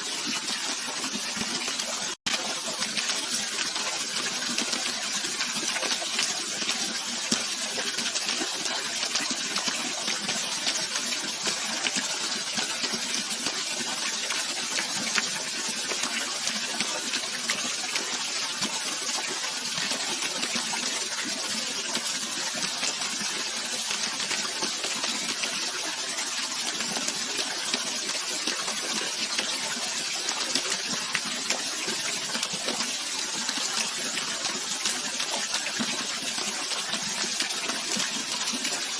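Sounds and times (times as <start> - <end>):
running water splashing: 0.0 - 38.9.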